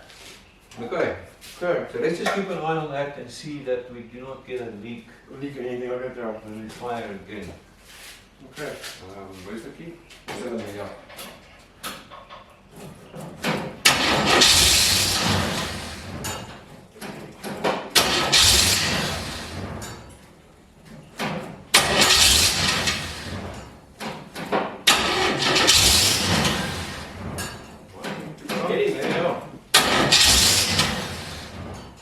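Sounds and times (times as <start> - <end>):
car engine starting and stalling: 12.8 - 32.0.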